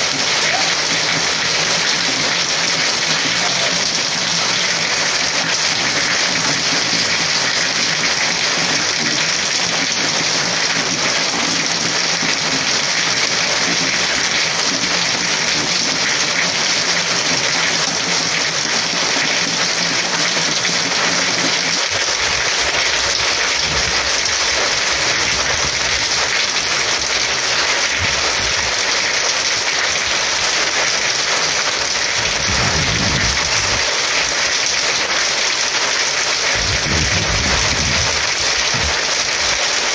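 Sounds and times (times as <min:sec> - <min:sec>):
heavy rain downpour: 0:00.0 - 0:39.9
low rumble: 0:32.2 - 0:33.9, 0:36.6 - 0:39.0.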